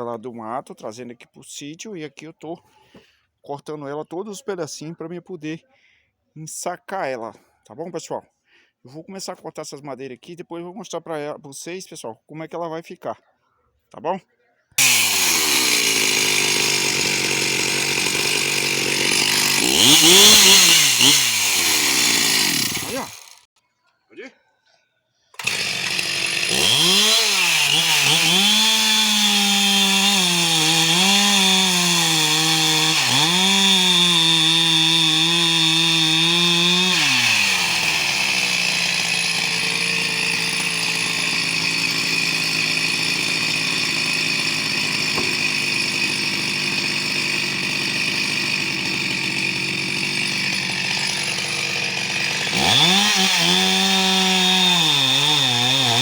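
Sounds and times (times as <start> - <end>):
chainsaw cutting logs: 14.8 - 23.5, 25.4 - 56.0.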